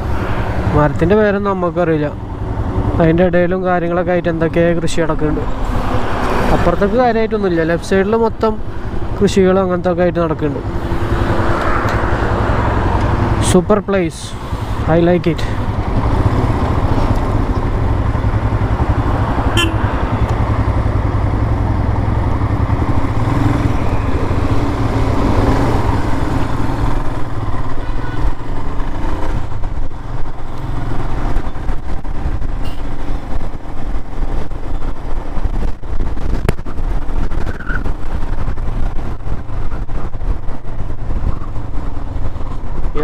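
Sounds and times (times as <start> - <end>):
motorcycle engine running: 15.4 - 43.0
wind buffeting microphone: 31.1 - 43.0.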